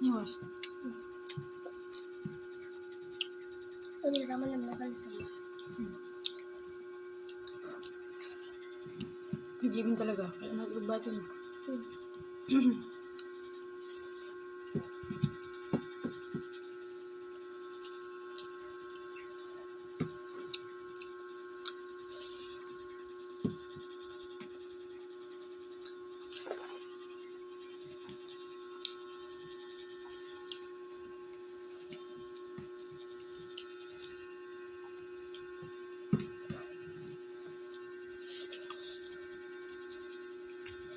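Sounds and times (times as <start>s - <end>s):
electrical hum: 0.0s - 40.9s
eating clicks and mouth noises: 0.4s - 9.7s, 31.8s - 36.7s.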